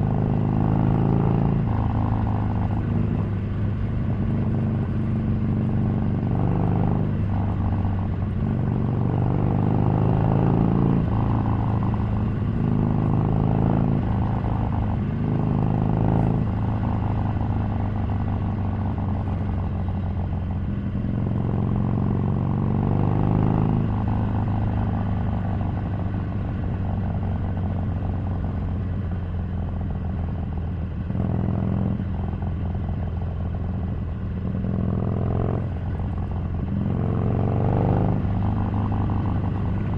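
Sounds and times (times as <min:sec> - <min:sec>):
motorcycle engine revving: 0:31.0 - 0:39.9.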